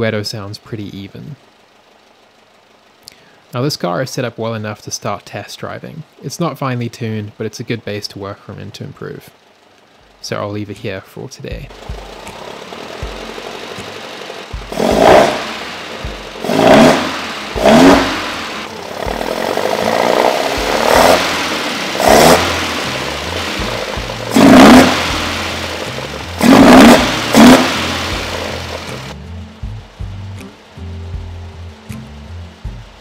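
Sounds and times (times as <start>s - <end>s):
car engine revving and idling: 0.0s - 4.6s, 11.6s - 33.0s.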